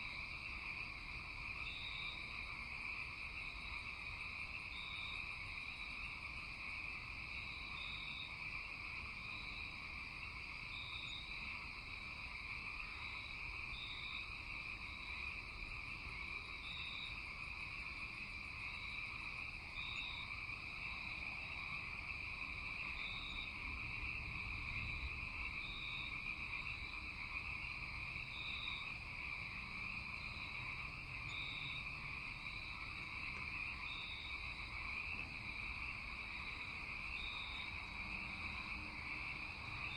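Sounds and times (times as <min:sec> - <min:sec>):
frogs trilling: 0:00.0 - 0:39.9.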